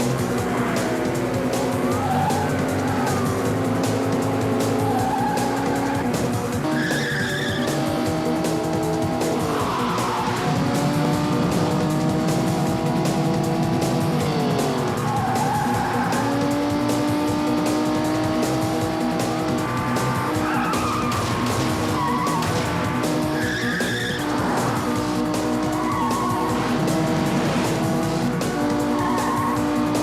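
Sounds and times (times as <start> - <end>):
background music score: 0.0 - 30.0
car engines revving: 0.0 - 30.0
tyre squeals: 4.8 - 7.8, 20.2 - 22.6, 23.2 - 24.6, 25.6 - 26.6, 28.9 - 29.7.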